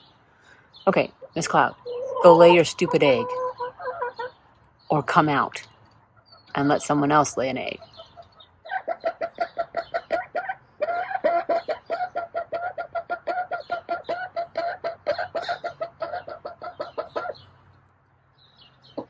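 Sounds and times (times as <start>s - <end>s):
hen clucking rapidly: 0.9s - 5.4s, 6.2s - 17.6s.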